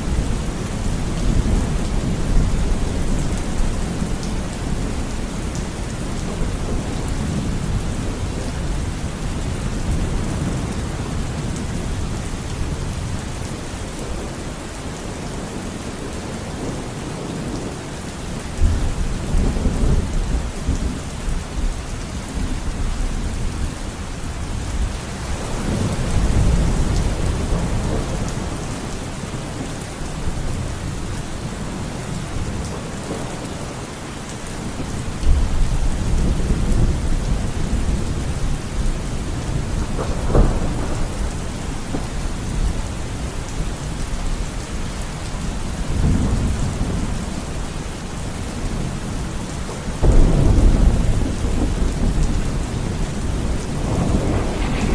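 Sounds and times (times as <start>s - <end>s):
rain falling: 0.0s - 54.9s
thunder rumbling: 25.3s - 33.4s, 34.8s - 43.7s, 50.0s - 54.9s
sharp thunder crack: 50.0s - 54.9s.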